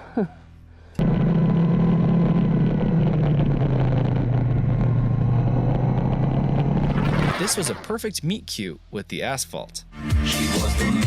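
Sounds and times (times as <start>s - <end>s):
vehicle engine running: 0.9s - 7.2s
road noise: 1.0s - 7.9s.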